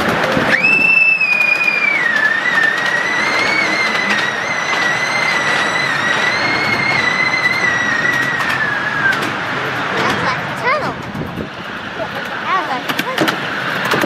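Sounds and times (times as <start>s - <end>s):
miniature train running noise: 0.0s - 14.0s
high-pitched wheel squeal: 0.5s - 9.6s.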